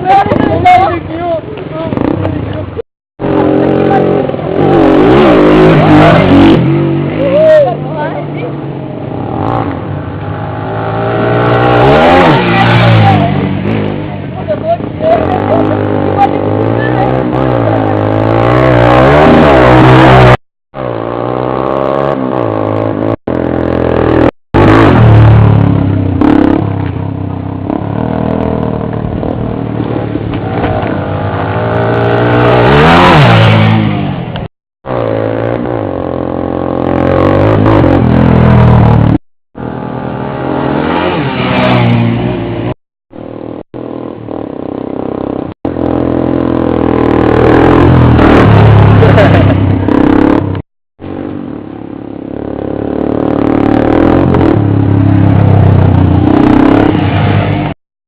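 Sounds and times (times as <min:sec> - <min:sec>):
motorcycle engines revving: 0:00.0 - 0:57.8.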